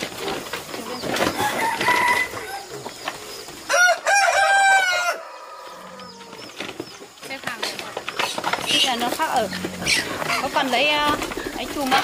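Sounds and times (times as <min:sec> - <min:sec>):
roosters crowing: 0:00.0 - 0:07.2
chickens clucking: 0:00.0 - 0:12.0.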